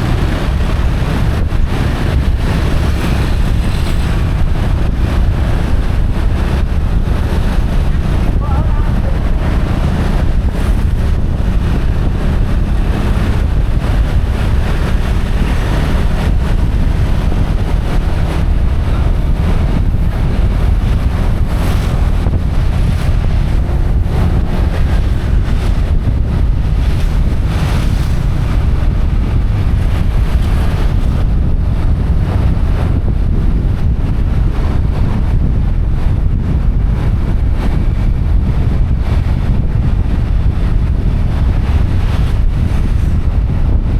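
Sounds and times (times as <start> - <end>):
wind buffeting microphone: 0.0 - 43.9.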